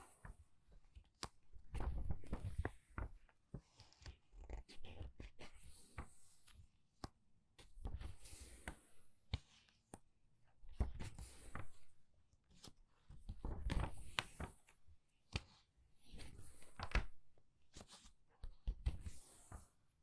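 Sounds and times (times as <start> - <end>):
book pages turning: 1.0 - 6.2, 12.5 - 19.7.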